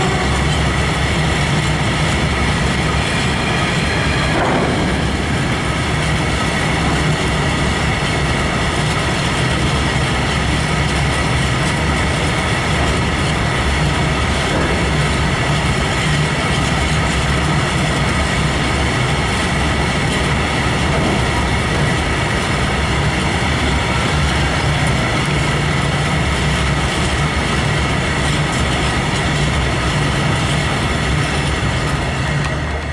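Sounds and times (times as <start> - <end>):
high whine: 0.0 - 11.4
train wheels rumbling on rails: 0.0 - 32.9.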